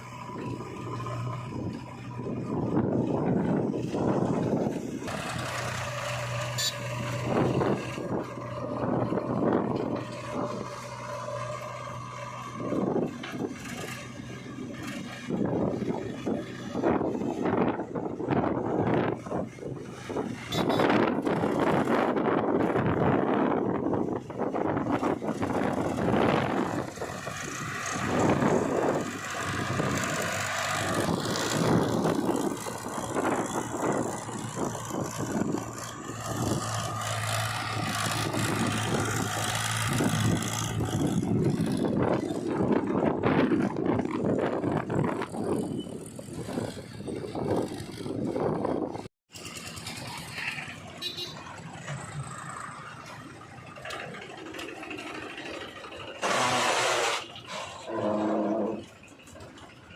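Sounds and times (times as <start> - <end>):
diesel engine running: 0.0 - 59.9
irregular clatter: 24.8 - 59.9.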